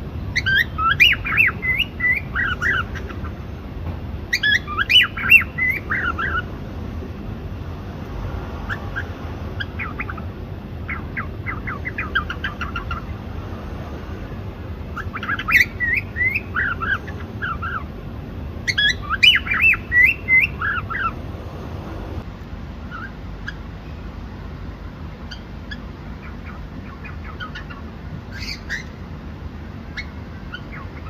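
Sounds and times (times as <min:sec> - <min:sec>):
cockatiel chirping: 0:00.3 - 0:03.4, 0:04.3 - 0:06.5, 0:08.7 - 0:13.2, 0:15.0 - 0:17.9, 0:18.6 - 0:21.2, 0:22.9 - 0:23.6, 0:25.3 - 0:29.0, 0:29.9 - 0:31.0.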